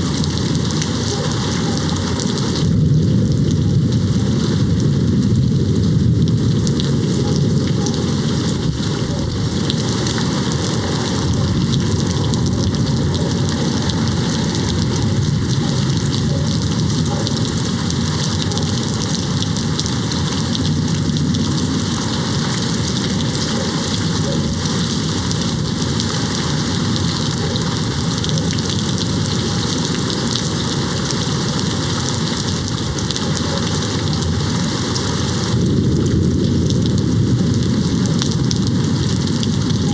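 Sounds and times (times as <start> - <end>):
rain on a window pane: 0.0 - 39.9.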